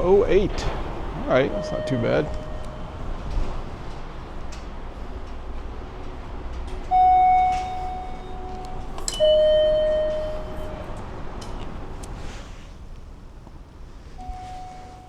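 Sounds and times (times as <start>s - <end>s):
low steady hum: 0.0s - 5.4s
two-note electronic chime: 1.5s - 3.4s, 7.3s - 10.9s, 14.2s - 15.0s.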